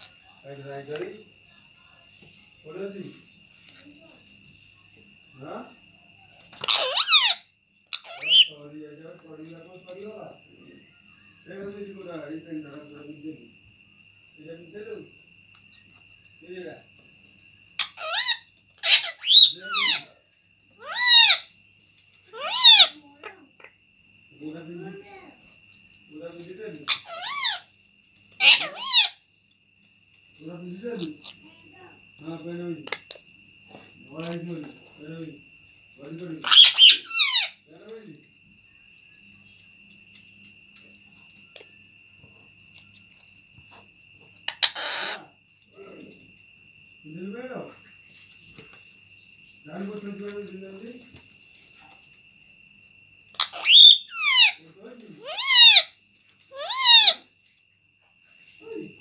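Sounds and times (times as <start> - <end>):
parrot squawking: 6.4 - 8.6, 17.8 - 20.2, 20.8 - 21.5, 22.3 - 23.7, 26.8 - 27.7, 28.3 - 29.2, 30.9 - 31.6, 36.4 - 37.7, 44.5 - 45.4, 53.3 - 54.6, 55.2 - 57.3
parrot calls rising and falling: 6.6 - 8.5, 17.8 - 20.1, 20.8 - 21.5, 22.3 - 23.0, 26.9 - 27.7, 28.4 - 29.2, 36.4 - 37.6, 53.3 - 54.6, 55.2 - 57.2.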